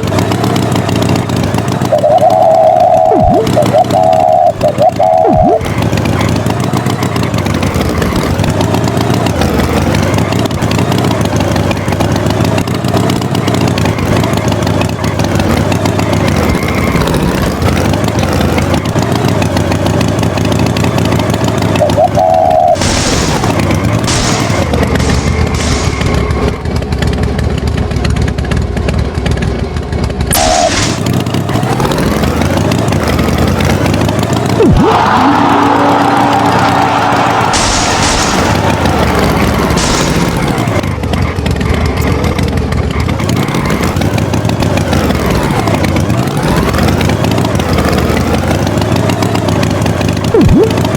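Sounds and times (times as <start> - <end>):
engine revving: 0.0 - 50.9
short high tones: 1.9 - 5.6, 21.8 - 22.8, 50.4 - 50.8.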